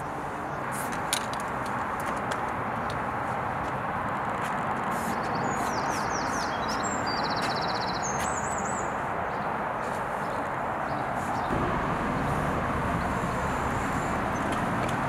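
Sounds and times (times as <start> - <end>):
city rumble: 0.0 - 15.0
songbird singing trills: 5.3 - 9.0.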